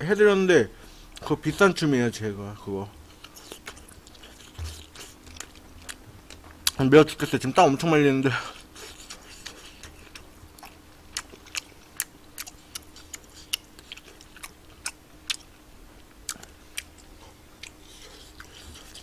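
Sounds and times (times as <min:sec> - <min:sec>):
faint steady hum: 0:00.0 - 0:19.0
wet chewing clicks and smacks: 0:03.1 - 0:06.8, 0:08.7 - 0:19.0.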